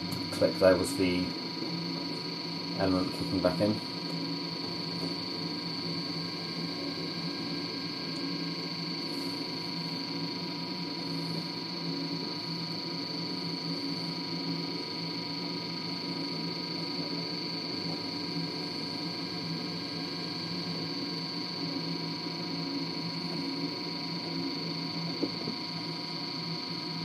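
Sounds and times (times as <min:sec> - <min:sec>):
high whine: 0:00.0 - 0:27.0.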